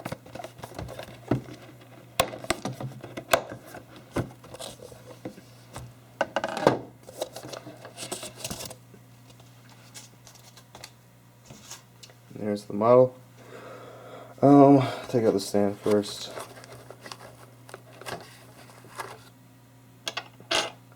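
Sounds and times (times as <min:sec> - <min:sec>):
box clicks and scrapes: 0:00.0 - 0:05.2, 0:15.8 - 0:19.3
plastic packaging rustling: 0:00.0 - 0:05.3, 0:15.0 - 0:19.3.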